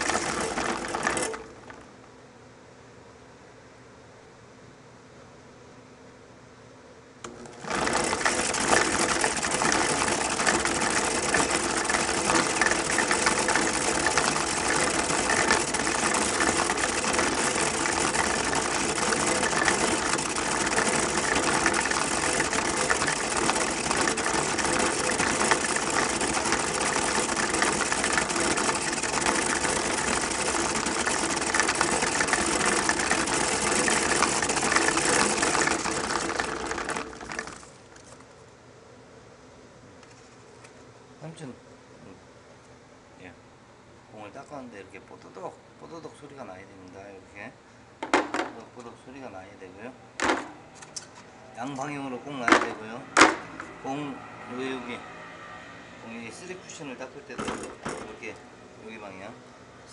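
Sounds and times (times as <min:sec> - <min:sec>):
cleaning machine running: 0:00.0 - 0:01.8, 0:07.3 - 0:38.1.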